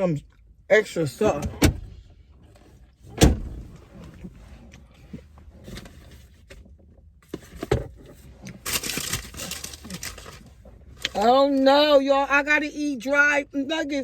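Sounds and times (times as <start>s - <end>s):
soft rustling and handling: 3.7s - 11.6s.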